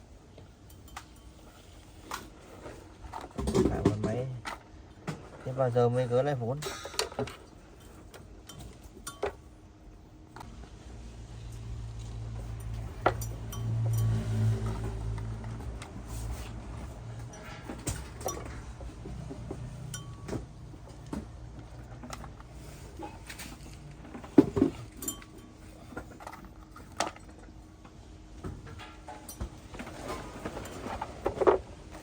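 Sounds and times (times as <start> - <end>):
metallic clinks and knocks: 6.6 - 9.4, 11.5 - 15.7, 17.2 - 22.4, 24.6 - 27.4.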